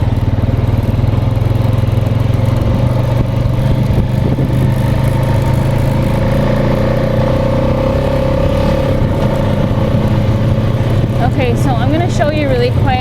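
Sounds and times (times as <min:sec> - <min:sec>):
small engine running with whine: 0:00.0 - 0:13.0.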